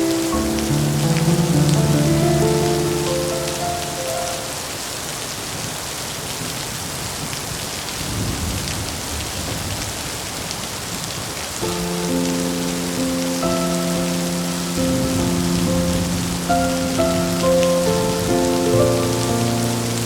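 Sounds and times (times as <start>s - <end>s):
soft held musical notes: 0.0s - 4.8s
heavy rain: 0.0s - 20.0s
low rumble of thunder: 8.0s - 10.4s.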